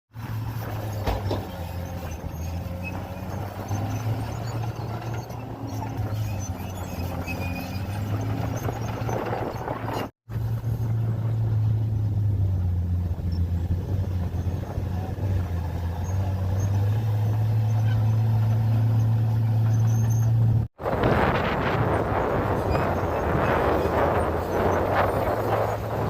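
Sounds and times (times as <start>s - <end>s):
bulldozer diesel engine humming: 0.1s - 26.0s.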